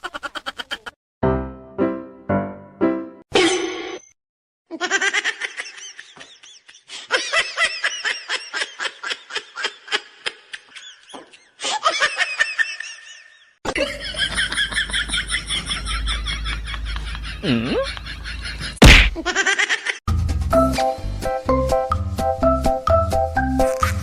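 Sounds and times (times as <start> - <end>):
person laughing hard: 0.0 - 1.0, 4.7 - 20.0.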